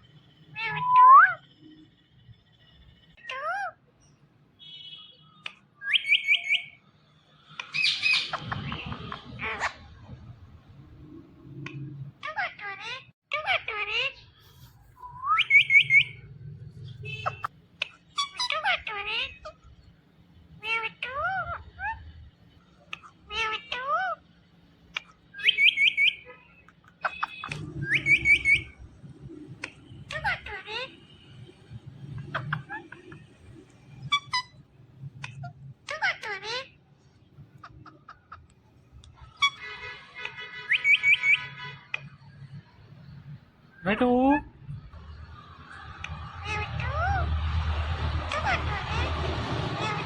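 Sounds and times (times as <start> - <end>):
parrot chirping and calling: 0.5 - 1.5, 2.8 - 4.2, 5.5 - 6.8, 7.5 - 10.3, 11.6 - 14.4, 15.0 - 19.9, 20.5 - 22.3, 22.9 - 24.3, 24.9 - 31.1, 31.8 - 42.6, 45.0 - 50.0
parakeet whistling: 5.8 - 6.8, 15.0 - 16.3, 25.4 - 26.3, 27.0 - 28.8, 40.6 - 41.5.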